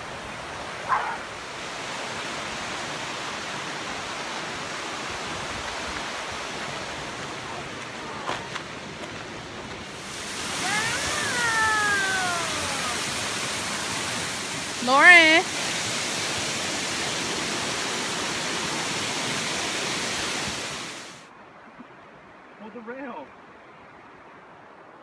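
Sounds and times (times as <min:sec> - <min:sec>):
waterfall rushing: 0:00.0 - 0:21.3
person speaking: 0:10.6 - 0:13.2, 0:14.8 - 0:15.5.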